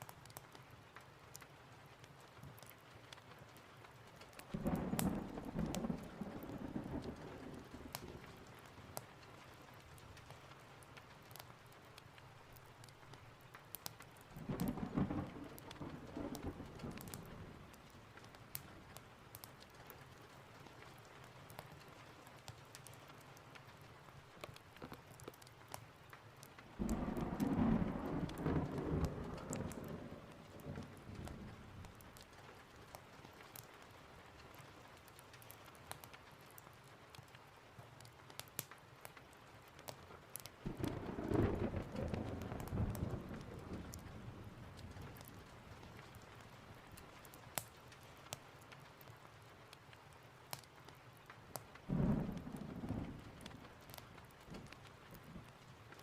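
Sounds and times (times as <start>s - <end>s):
light rain ticks: 0.0s - 56.0s
steady rain: 0.0s - 56.0s
thunder rumbling: 4.5s - 8.8s, 14.4s - 18.0s, 26.7s - 32.2s, 40.6s - 46.2s, 51.9s - 55.6s.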